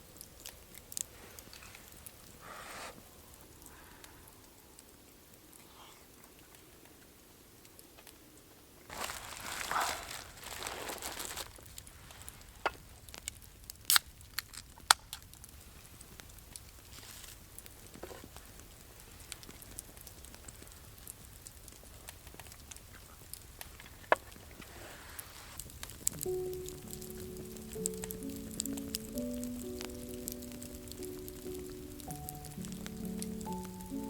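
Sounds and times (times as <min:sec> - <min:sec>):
rustle: 0:00.0 - 0:28.5
sharp clicks and pops: 0:12.6 - 0:15.6, 0:25.6 - 0:34.0.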